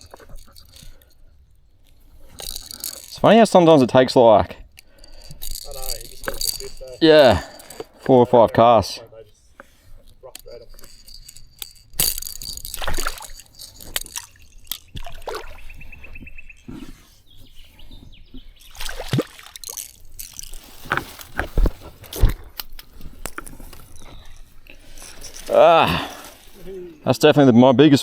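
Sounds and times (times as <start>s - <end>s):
water splashing and sloshing: 12.8s - 16.2s, 18.6s - 21.2s.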